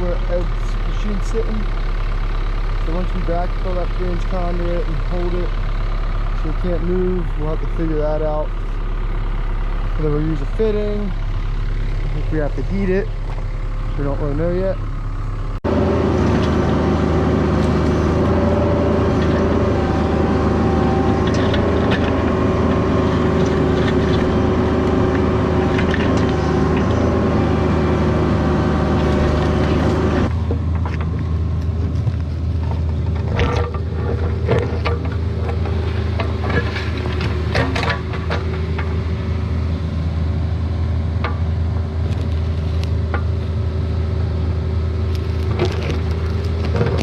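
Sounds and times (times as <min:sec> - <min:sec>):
diesel engine running: 0:00.0 - 0:47.0
hydraulic whine: 0:06.4 - 0:43.3
mechanical creaks and clanks: 0:21.0 - 0:27.1, 0:29.0 - 0:39.0.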